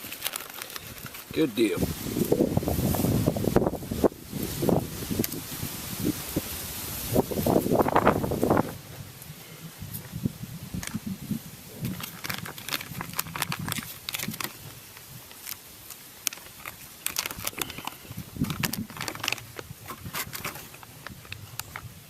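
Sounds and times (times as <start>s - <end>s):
crinkling and clicking: 0.0s - 1.5s, 10.8s - 11.0s, 11.8s - 22.0s.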